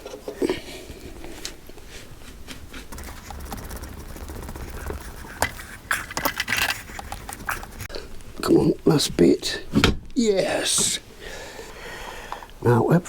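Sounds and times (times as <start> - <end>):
metal parts knocking and clicking: 2.9 - 7.9.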